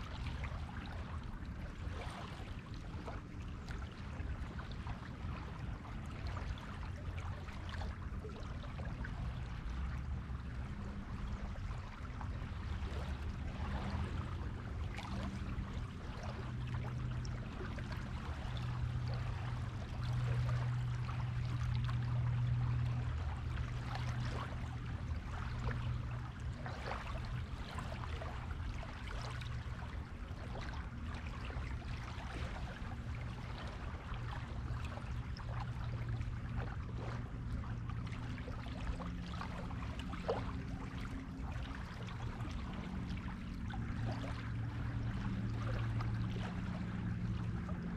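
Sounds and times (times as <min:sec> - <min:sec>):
low hum: 0:00.0 - 0:47.9
small waves washing on shore: 0:00.0 - 0:47.9.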